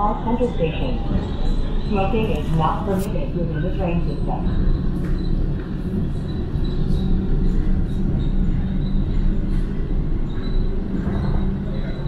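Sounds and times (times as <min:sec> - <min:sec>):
train rumbling from inside: 0:00.0 - 0:12.0.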